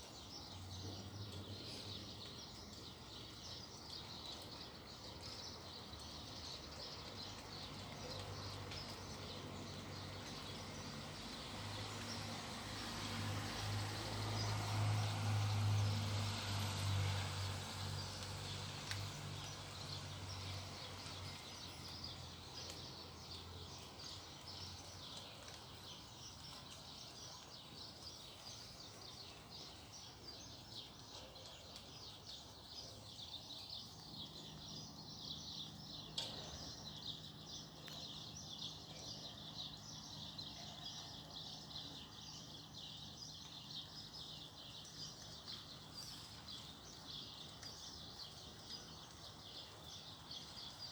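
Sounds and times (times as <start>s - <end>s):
rain pattering: 0.0s - 33.2s, 44.2s - 50.9s.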